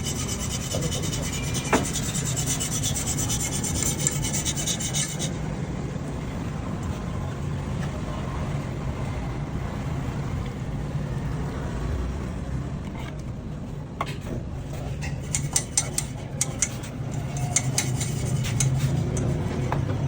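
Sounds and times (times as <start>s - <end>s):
rasping filing scrape: 0.0s - 5.4s, 14.8s - 19.8s
low mechanical hum: 0.0s - 20.0s.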